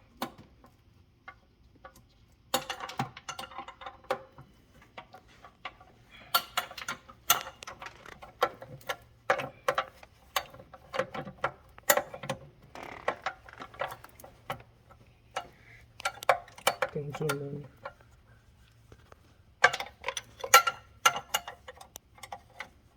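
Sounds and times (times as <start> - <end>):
metal tools clinking: 19.6 - 22.7.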